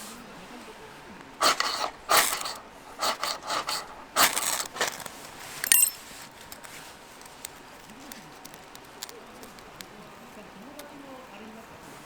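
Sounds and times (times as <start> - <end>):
rustling scrapes: 1.4 - 8.7
bright ringing clink: 5.6 - 6.0
faint ticks: 6.5 - 11.4.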